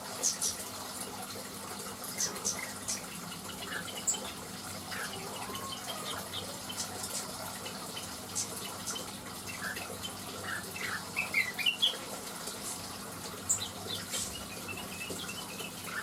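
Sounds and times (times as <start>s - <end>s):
steady watery hiss: 0.0s - 16.0s
bird chirping: 13.5s - 16.0s.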